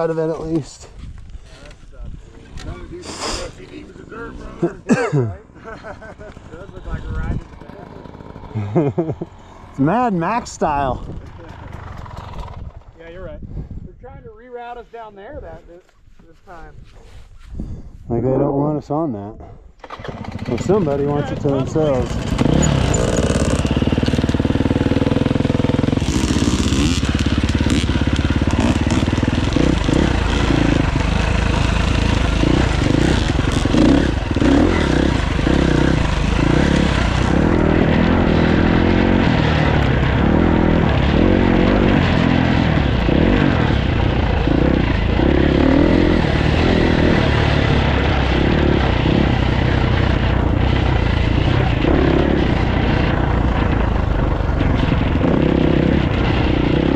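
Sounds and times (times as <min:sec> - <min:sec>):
dirt bike engine revving: 0:06.0 - 0:12.7, 0:19.8 - 0:56.9.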